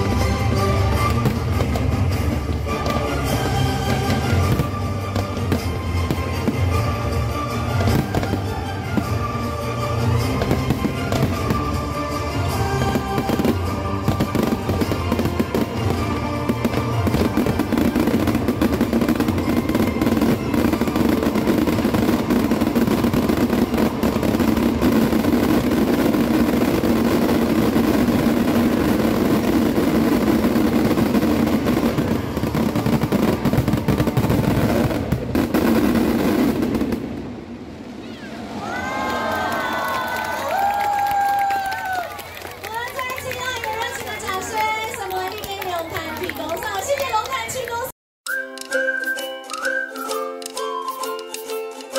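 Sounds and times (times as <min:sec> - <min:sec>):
music over loudspeakers: 0:00.0 - 0:24.6
fireworks bangs and crackles: 0:00.0 - 0:47.9.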